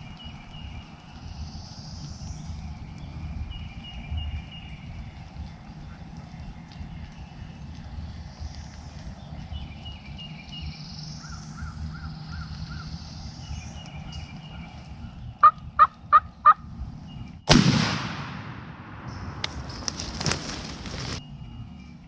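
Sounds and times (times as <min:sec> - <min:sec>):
songbird chirping: 0:00.0 - 0:22.0
turkey calls: 0:14.5 - 0:16.7
shotgun blast: 0:17.5 - 0:19.7.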